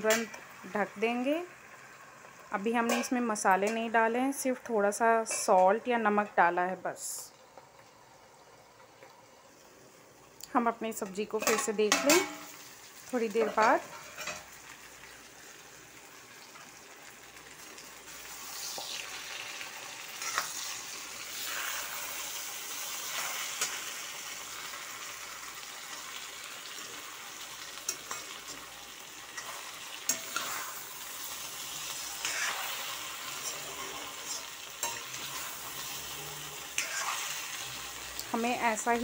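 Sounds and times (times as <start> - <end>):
vegetables sizzling in oil: 0.0 - 39.0
metal spatula scraping pan: 20.2 - 22.3, 29.3 - 30.9, 31.6 - 37.8.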